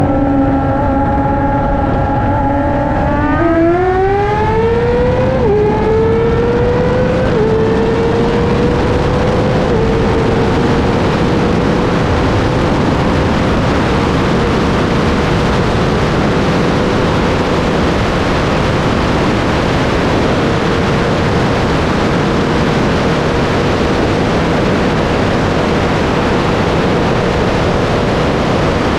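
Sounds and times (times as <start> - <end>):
motorcycle engine revving: 0.0 - 28.9
wind rushing over microphone: 0.0 - 28.9.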